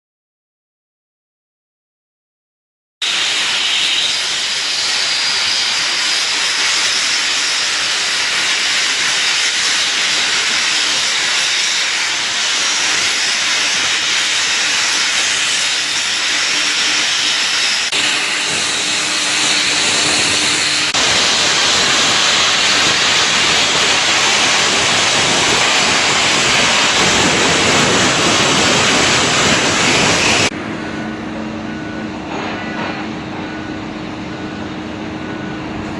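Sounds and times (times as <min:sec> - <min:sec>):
cutting torch hissing: 0:03.0 - 0:30.5.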